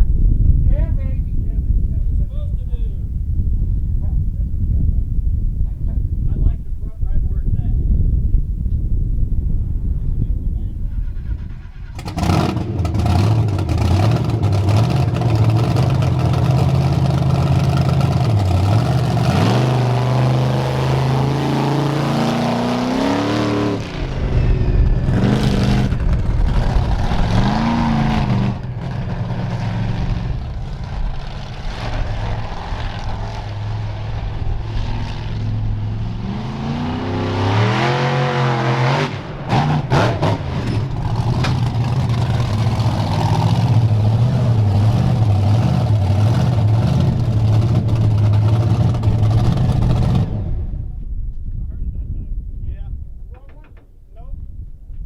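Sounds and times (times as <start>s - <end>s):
truck engine revving: 10.2s - 50.9s.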